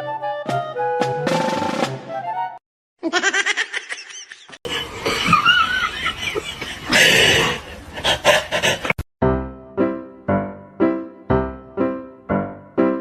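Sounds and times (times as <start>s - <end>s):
people laughing: 3.0s - 7.1s.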